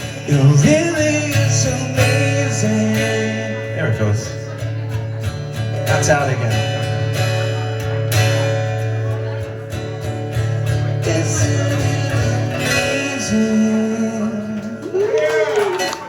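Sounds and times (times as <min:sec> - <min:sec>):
man singing: 0:00.0 - 0:04.6, 0:10.3 - 0:15.5
acoustic guitar strumming: 0:00.0 - 0:16.0.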